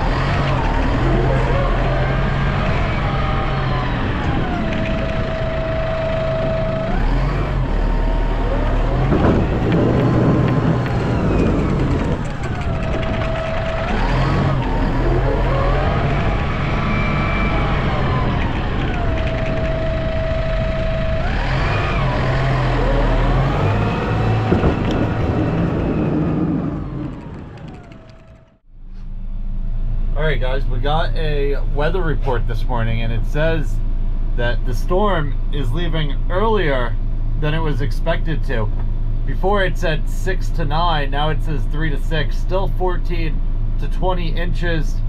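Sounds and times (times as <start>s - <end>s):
snow plow engine whine: 0.0s - 45.0s.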